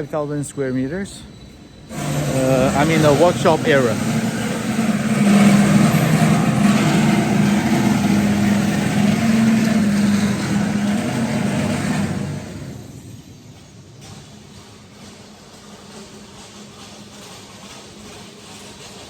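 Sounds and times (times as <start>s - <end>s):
motor running with low hum: 1.9s - 13.3s.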